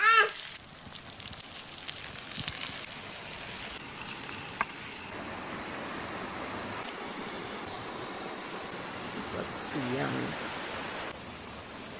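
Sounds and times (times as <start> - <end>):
fish frying in hot oil: 0.1 - 5.2.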